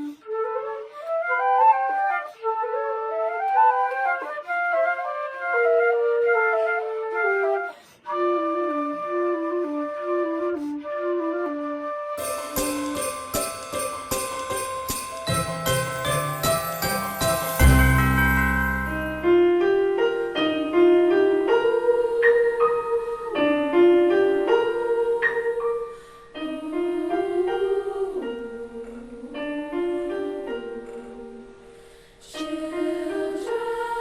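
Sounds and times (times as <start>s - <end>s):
slow piano music: 12.2s - 31.9s.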